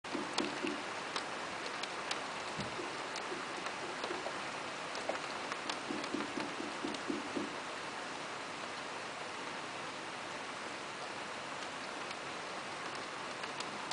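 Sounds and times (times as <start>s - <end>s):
rain hissing: 0.0s - 13.9s
low dull taps: 0.1s - 0.8s, 2.6s - 4.4s, 5.0s - 7.6s
raindrops ticking sharply: 0.1s - 7.8s.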